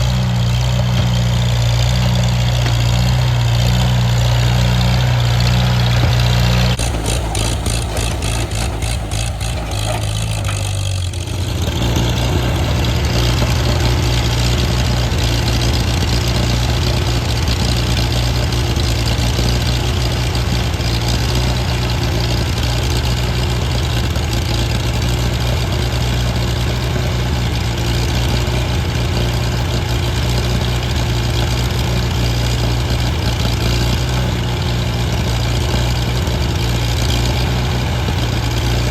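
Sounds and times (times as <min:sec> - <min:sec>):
tractor engine running: 0:00.0 - 0:38.9
rapid regular ticking: 0:06.4 - 0:26.3.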